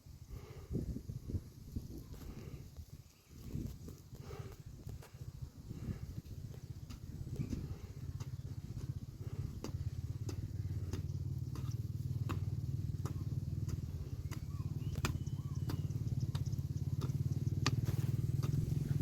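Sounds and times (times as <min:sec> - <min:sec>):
low engine drone: 0:08.6 - 0:19.0
faint chirps: 0:13.2 - 0:19.0.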